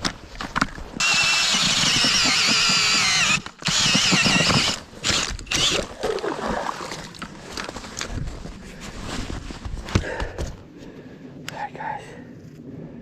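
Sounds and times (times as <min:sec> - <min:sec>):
power ice auger grinding whine: 0:01.0 - 0:06.0.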